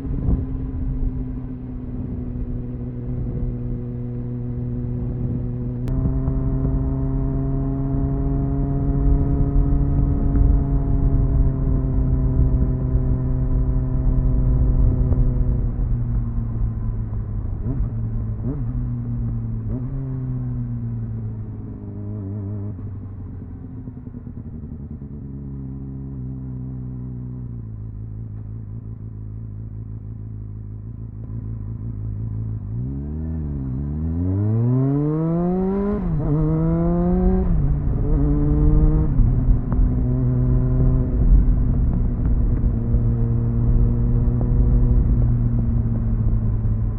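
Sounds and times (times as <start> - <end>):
motorcycle engine revving: 0.0 - 15.8, 30.7 - 46.9.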